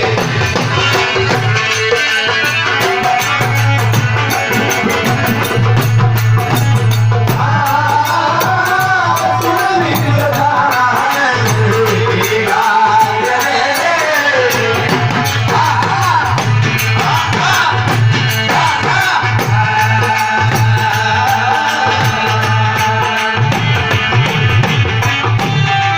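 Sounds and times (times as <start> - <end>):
hand drums: 0.0 - 25.9
instrumental melody: 0.0 - 25.9.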